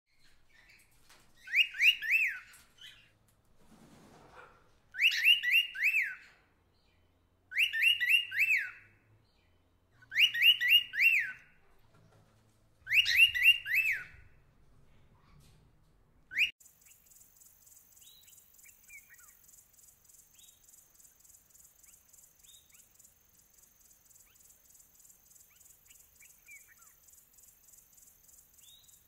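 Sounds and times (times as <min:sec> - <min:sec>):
bird calling: 0:04.4 - 0:06.5, 0:07.5 - 0:09.0, 0:10.0 - 0:11.6, 0:12.9 - 0:14.4, 0:16.3 - 0:29.0.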